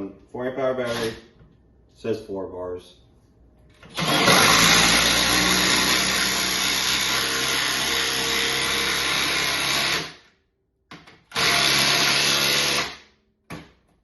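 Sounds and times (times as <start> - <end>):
cordless drill driving screw into wood: 0.8 - 1.2, 3.8 - 10.2, 11.0 - 13.1.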